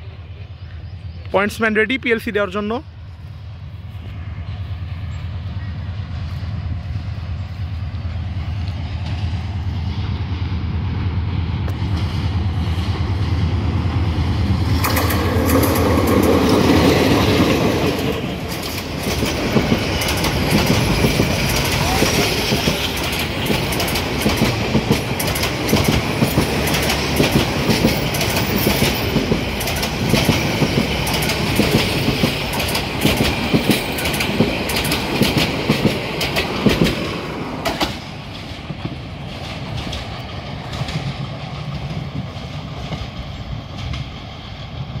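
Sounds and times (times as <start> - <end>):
train rumble: 0.0 - 45.0
train wheels clattering over rail joints: 14.0 - 45.0.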